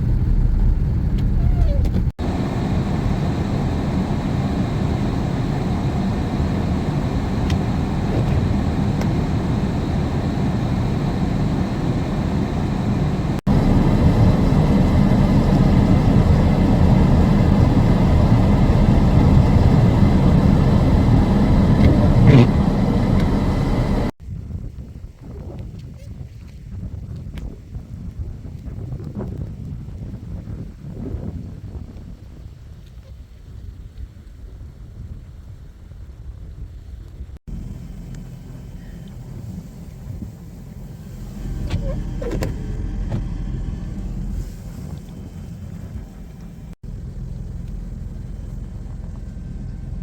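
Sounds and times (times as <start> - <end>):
vehicle road and engine rumble: 0.0 - 24.2, 37.4 - 50.0.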